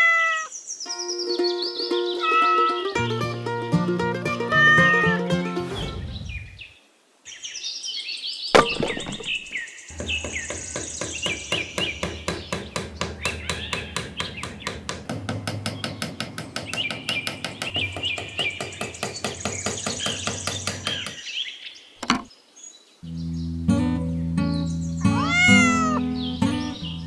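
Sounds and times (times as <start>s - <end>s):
birds chirping: 0.3s - 3.0s, 5.8s - 27.0s
music: 0.9s - 6.1s, 23.0s - 27.0s
sharp knock: 8.6s - 19.3s
hammer tapping stick into sand: 9.9s - 21.2s.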